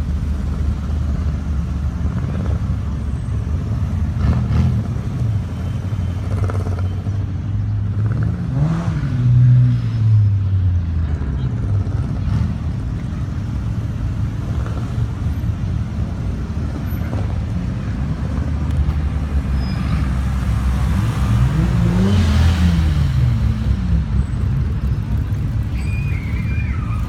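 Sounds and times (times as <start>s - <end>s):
car engine rumbling: 0.0s - 27.0s
car engine revving: 19.8s - 25.6s.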